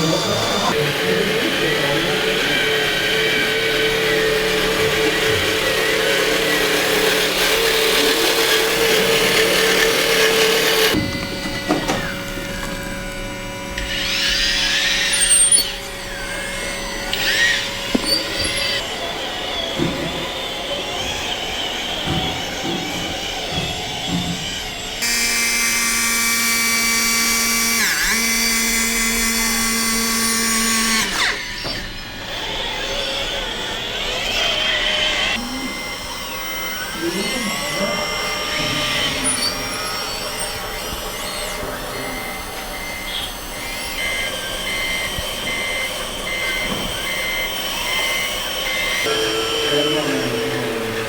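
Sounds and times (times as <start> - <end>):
reversing beeper pulses: 0.0 - 9.3, 31.1 - 51.0
mechanical working noise: 0.0 - 51.0
model motor whine: 0.0 - 51.0.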